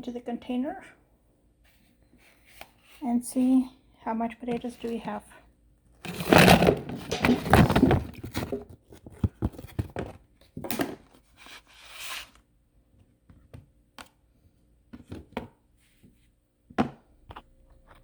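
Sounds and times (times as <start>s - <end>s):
rustling scrapes: 6.0s - 8.6s
potatoes knocking into container: 6.1s - 8.7s.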